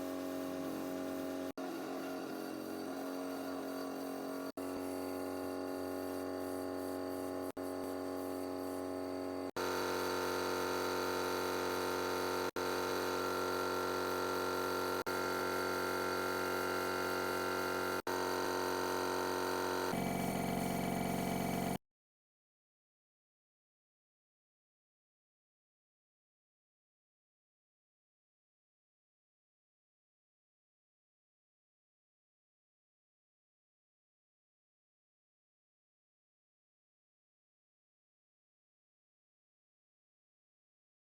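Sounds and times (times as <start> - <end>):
steady machine hum: 0.0 - 21.8.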